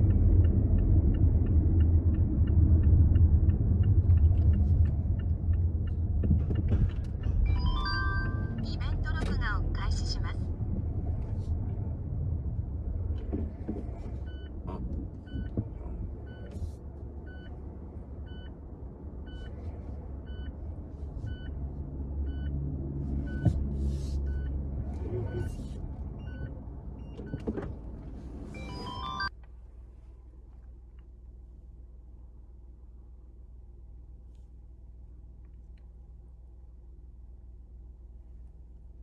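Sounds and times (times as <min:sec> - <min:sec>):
car road rumble: 0:00.0 - 0:39.0
brakes squeaking: 0:23.0 - 0:29.4.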